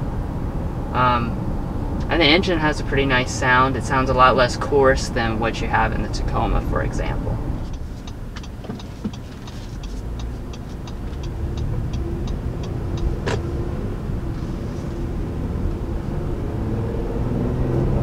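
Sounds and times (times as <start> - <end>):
car engine accelerating: 0.0 - 18.0
road rumble inside car: 0.0 - 18.0
light rapid ticking: 7.6 - 13.2.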